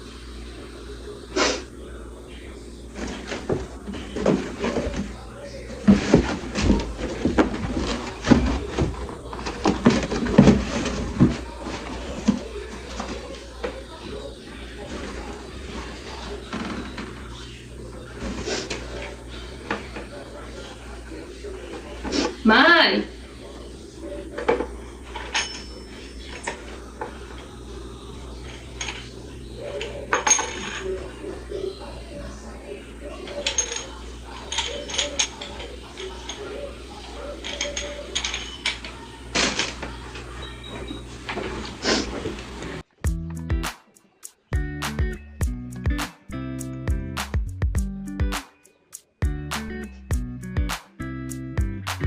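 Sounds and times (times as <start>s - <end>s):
fan parts clicking and knocking: 5.8s - 13.8s.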